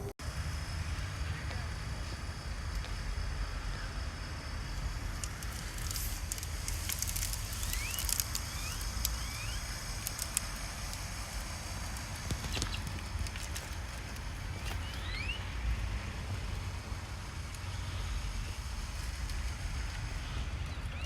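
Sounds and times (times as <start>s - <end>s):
steady low rumble: 0.0s - 21.0s
crackling clicks: 4.7s - 21.0s
short rising chirps: 7.1s - 10.1s, 14.5s - 15.7s.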